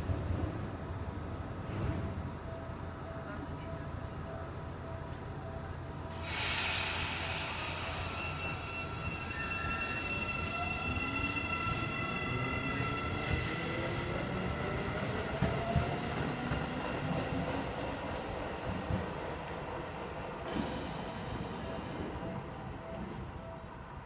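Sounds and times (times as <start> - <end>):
electric train running past: 0.0 - 24.0
steady high tones: 7.2 - 15.2.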